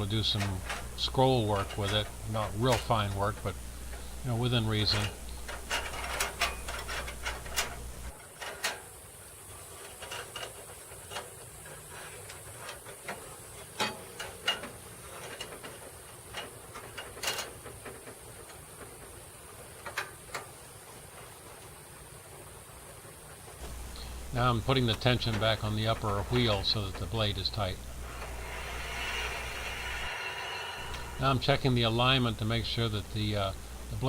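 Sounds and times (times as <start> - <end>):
low steady hum: 0.0 - 8.2, 23.6 - 34.0
metal parts clicking: 3.9 - 8.9.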